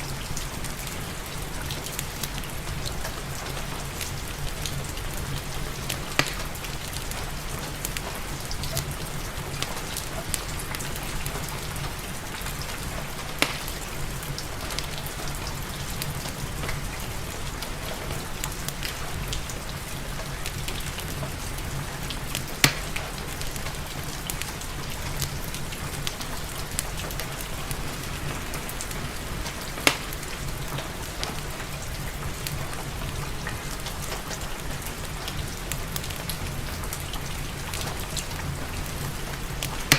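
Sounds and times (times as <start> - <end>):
steady rain falling: 0.0 - 39.9
wood fire crackling: 0.0 - 39.9
fire popping: 3.4 - 8.8, 9.5 - 16.3, 22.3 - 39.9.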